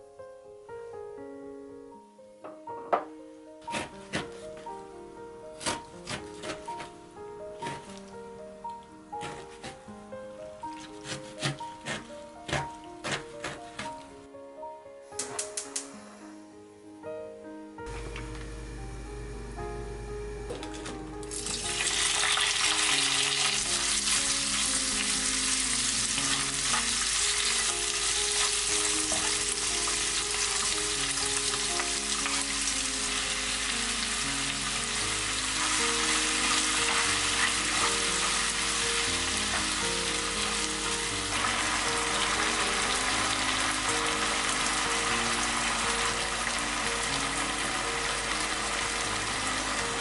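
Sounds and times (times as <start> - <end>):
quiet background music: 0.0 - 50.0
food sizzling in hot oil: 21.3 - 50.0.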